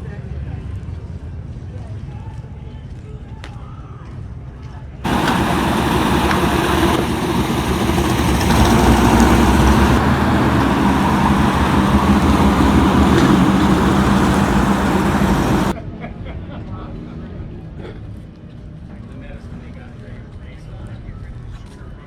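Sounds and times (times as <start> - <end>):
vehicle engine rumbling: 5.0 - 15.8.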